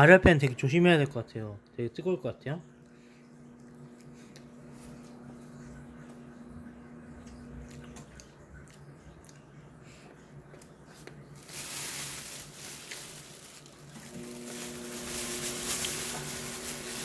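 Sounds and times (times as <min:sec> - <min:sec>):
oven hum: 0:00.0 - 0:17.0
crunching crisp snack: 0:10.6 - 0:17.0.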